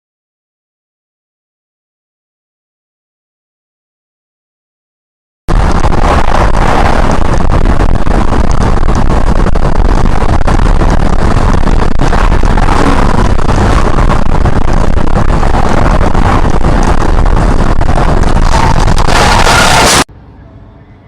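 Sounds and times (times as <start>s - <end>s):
vehicle engine and road noise: 5.5s - 21.0s.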